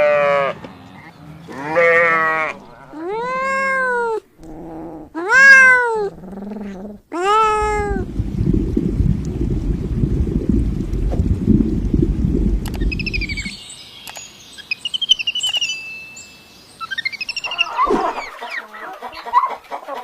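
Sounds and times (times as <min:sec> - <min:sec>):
cat meowing: 0:01.7 - 0:04.2, 0:05.1 - 0:06.1, 0:07.1 - 0:08.0.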